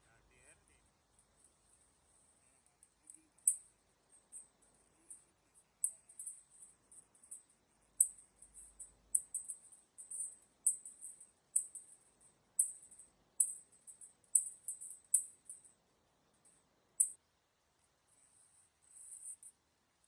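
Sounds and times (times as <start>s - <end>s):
faint scratchy rustling: 17.8s - 19.6s.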